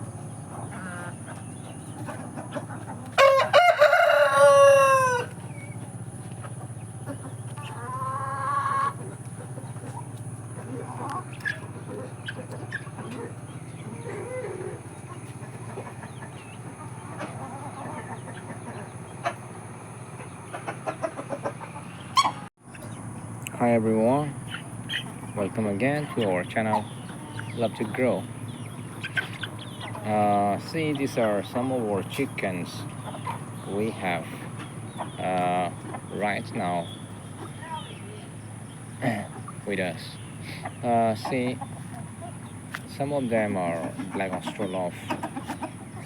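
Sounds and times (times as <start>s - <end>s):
faint chicken calls: 0.0s - 23.3s, 24.3s - 46.0s
rooster crowing: 3.2s - 5.4s
steady low hum: 4.2s - 46.0s.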